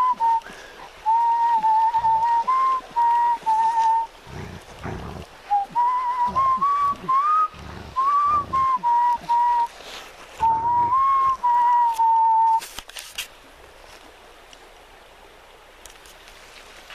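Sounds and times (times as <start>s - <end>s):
person whistling a tune: 0.0s - 4.1s, 5.5s - 9.7s, 10.4s - 12.6s.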